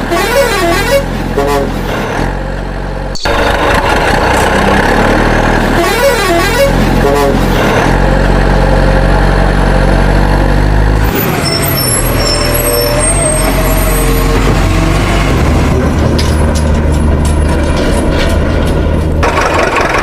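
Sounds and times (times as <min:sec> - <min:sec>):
heavy vehicle engine drone: 0:00.0 - 0:20.0.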